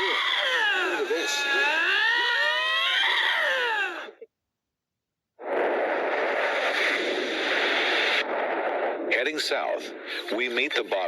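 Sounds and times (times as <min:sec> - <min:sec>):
lynx yowling: 0:00.0 - 0:04.2.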